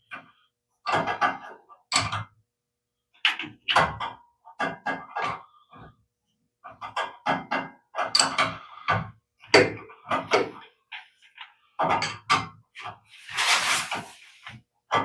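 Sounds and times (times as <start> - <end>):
scraping rustle: 13.1 - 14.6.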